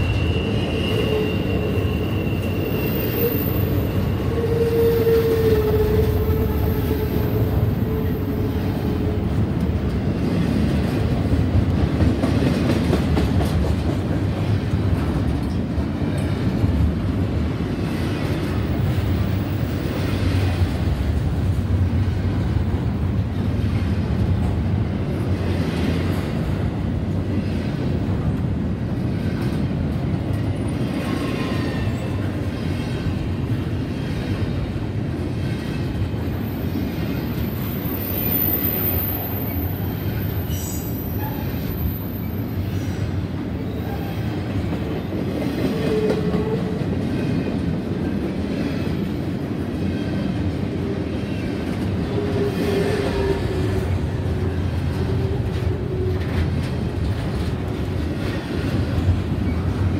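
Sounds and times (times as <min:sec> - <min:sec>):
wheel squeal: 0:00.0 - 0:07.4
train wheels rumbling and clacking: 0:00.0 - 0:59.9.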